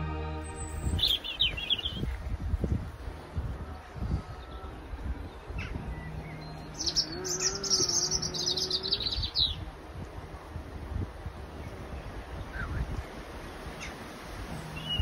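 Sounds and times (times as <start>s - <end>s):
wind buffeting microphone: 0.4s - 15.0s
songbird trilling: 0.6s - 2.2s, 4.4s - 9.6s, 14.6s - 15.0s.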